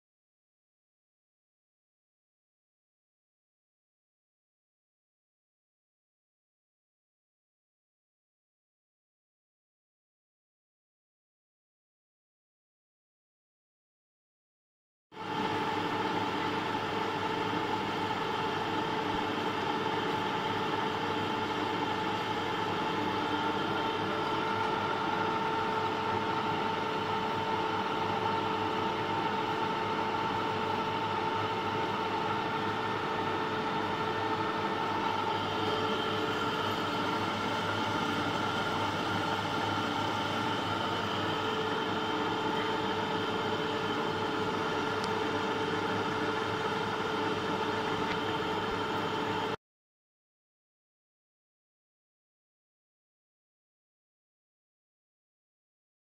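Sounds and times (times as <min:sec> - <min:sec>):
electric machinery humming: 0:15.2 - 0:49.6
high machine whine: 0:15.2 - 0:49.6.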